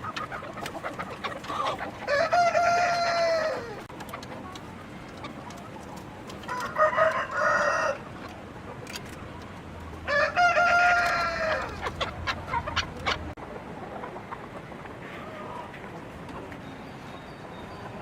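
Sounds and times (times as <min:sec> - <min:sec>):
roosters crowing: 0:00.0 - 0:03.9, 0:06.4 - 0:08.2, 0:10.0 - 0:13.4.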